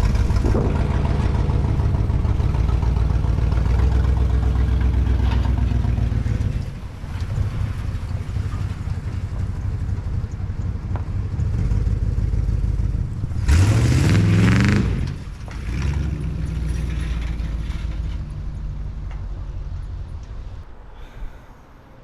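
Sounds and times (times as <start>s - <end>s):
vehicle engine revving: 0.0s - 20.6s.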